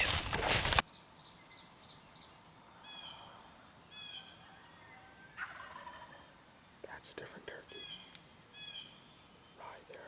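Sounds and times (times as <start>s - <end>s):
wild turkeys gobbling: 4.0s - 6.4s.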